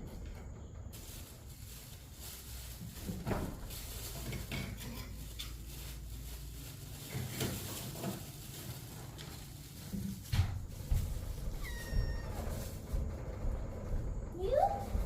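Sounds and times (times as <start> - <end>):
dishes and utensils clinking: 4.2 - 5.7.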